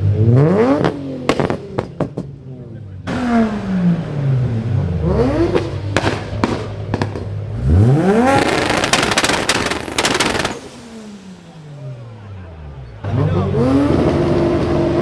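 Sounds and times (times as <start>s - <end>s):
car engine revving: 0.0s - 15.0s
exhaust crackles and pops: 0.7s - 2.5s, 3.1s - 12.4s.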